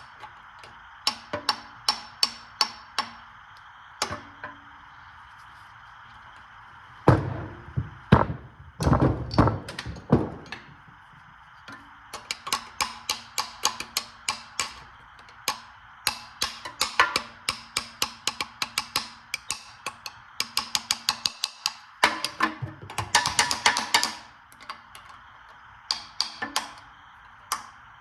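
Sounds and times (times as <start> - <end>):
loud metallic knocks: 7.1 - 10.6.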